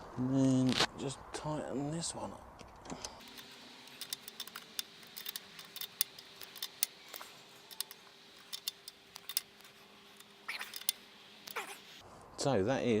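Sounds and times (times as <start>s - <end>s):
hand tools clinking on bolt: 3.2s - 11.7s.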